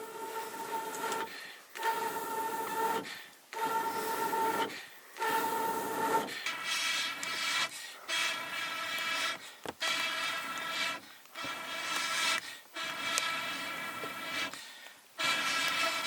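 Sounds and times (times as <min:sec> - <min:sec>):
scraping strokes with ringing tone: 0:03.6 - 0:11.0.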